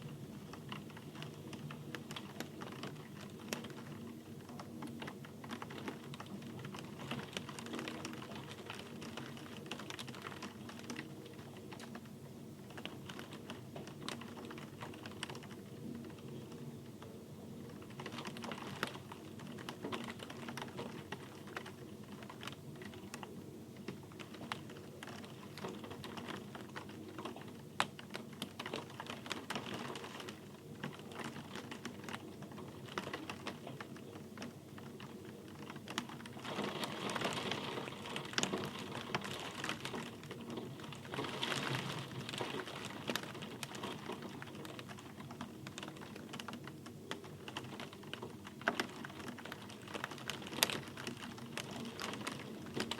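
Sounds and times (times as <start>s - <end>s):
raindrops ticking on hard surface: 0.0s - 52.9s.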